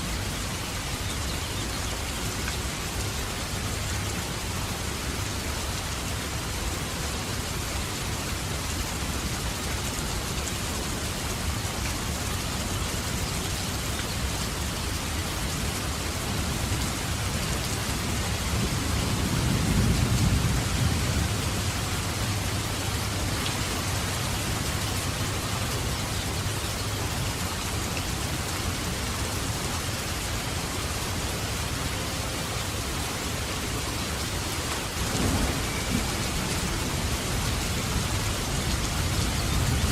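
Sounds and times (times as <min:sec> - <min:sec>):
heavy rain falling: 0:00.0 - 0:39.9
low rumble of thunder: 0:18.1 - 0:22.6, 0:35.0 - 0:39.9.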